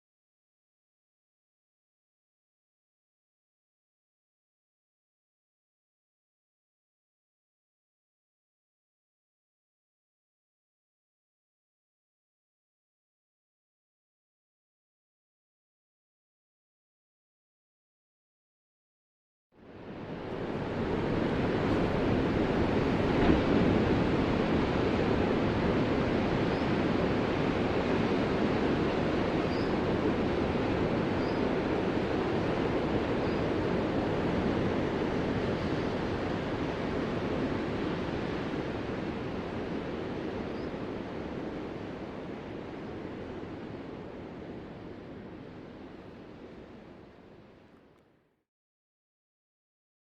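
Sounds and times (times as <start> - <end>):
ocean waves breaking: 19.7 - 47.1.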